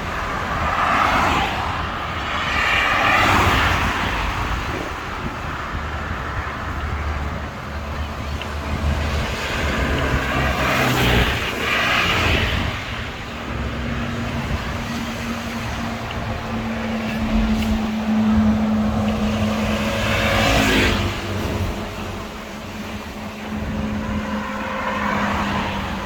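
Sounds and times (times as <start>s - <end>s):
road traffic passing: 0.0s - 26.0s
wind rushing over microphone: 0.0s - 26.0s.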